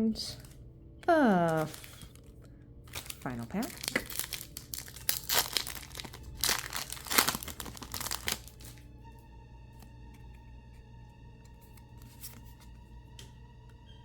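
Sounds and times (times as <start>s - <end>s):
quiet music with held notes: 0.0s - 14.0s
foil wrapper crinkling: 0.3s - 8.8s.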